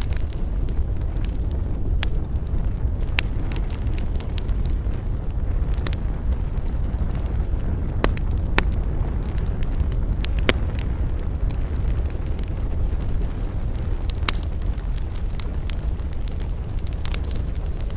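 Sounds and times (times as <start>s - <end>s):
campfire crackling and popping: 0.0s - 17.9s
wind rumble on microphone: 0.0s - 17.9s.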